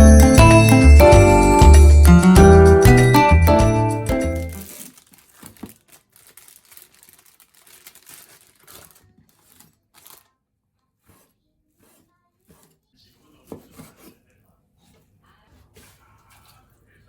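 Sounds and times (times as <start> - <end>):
faint crinkling and rustling: 4.5 - 17.0.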